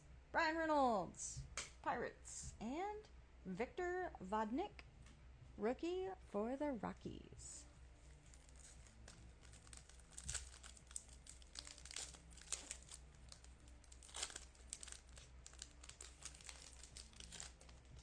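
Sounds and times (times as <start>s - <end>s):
faint low hum: 0.0s - 18.0s
wrapper crinkling and tearing: 8.0s - 18.0s.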